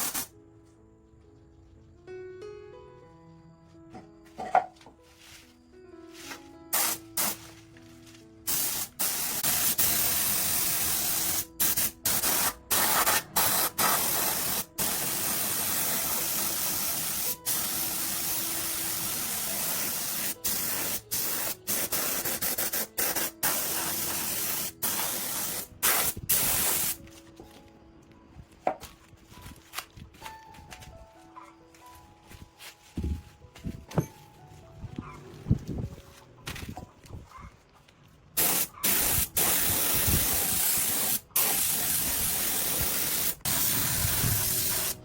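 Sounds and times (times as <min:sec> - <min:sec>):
pressurized spray hissing: 0:00.0 - 0:00.3, 0:06.7 - 0:07.4, 0:08.5 - 0:27.0, 0:38.4 - 0:45.0
faint background music: 0:00.0 - 0:45.0.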